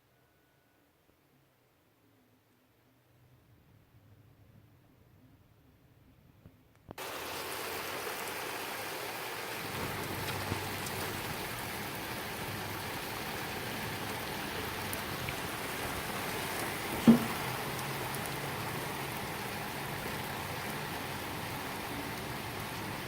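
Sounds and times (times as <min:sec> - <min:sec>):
heavy rain hissing: 0:07.0 - 0:23.0.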